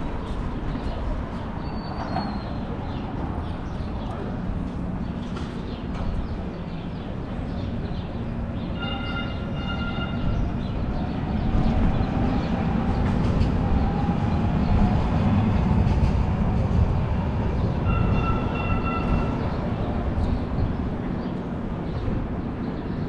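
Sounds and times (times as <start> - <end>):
train passing rumble: 0.0 - 23.0
train horn: 8.8 - 10.4, 17.8 - 19.4.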